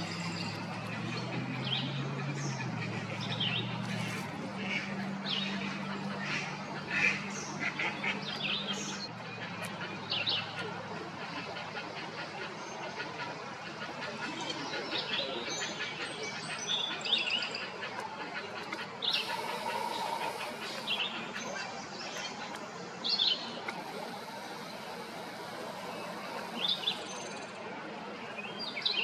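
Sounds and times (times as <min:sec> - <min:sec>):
wild birds chirping: 0:00.0 - 0:29.0
steady background hiss: 0:18.8 - 0:29.0.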